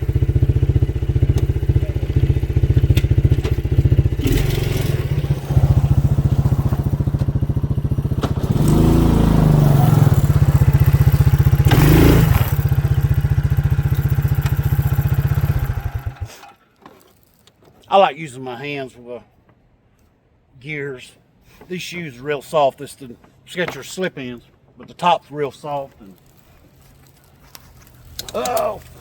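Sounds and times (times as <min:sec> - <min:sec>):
small engine running and revving: 0:00.0 - 0:16.4.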